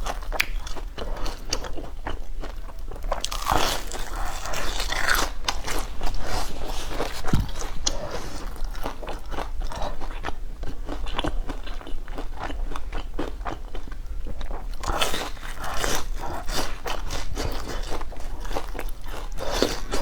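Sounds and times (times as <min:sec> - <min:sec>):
crunchy biting and chewing: 0:00.0 - 0:20.0.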